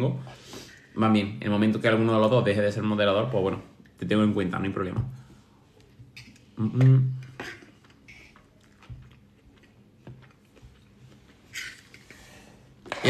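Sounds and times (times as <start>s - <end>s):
man chewing food: 5.5s - 12.9s.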